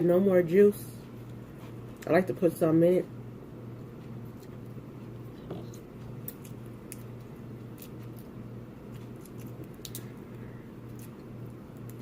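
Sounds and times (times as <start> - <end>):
low hum: 0.0 - 12.0
chewing clicks and wet smacks: 4.2 - 10.1.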